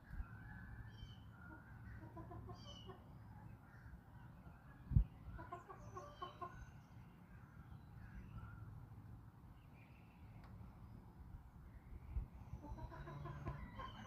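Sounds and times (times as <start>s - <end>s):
small birds chirping: 0.0s - 14.0s
chickens clucking: 1.5s - 3.1s, 5.3s - 6.7s, 12.6s - 14.0s.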